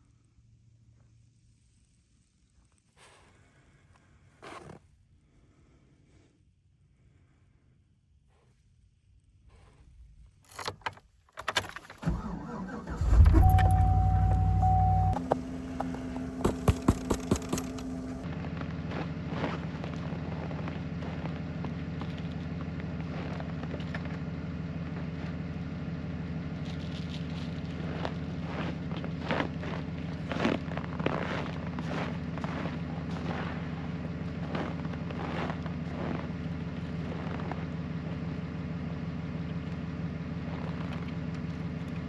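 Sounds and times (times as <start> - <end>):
truck engine starting and idling: 11.6 - 29.4
keys jangling: 13.0 - 18.2
quick clicks: 13.0 - 18.2
short steady tone: 13.0 - 18.2.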